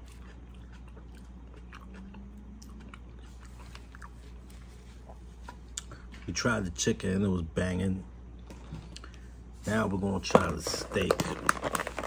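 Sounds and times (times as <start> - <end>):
person chewing: 0.0 - 6.2.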